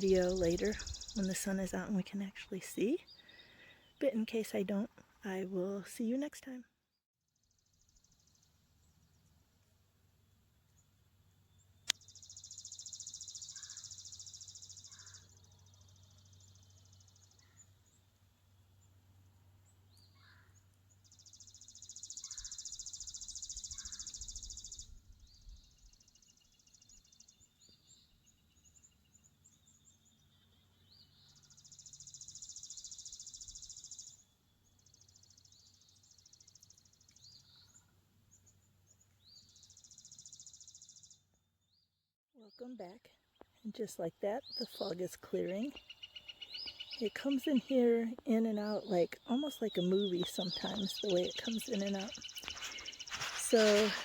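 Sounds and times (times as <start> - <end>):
short bird chirps: 51.6 - 54.0.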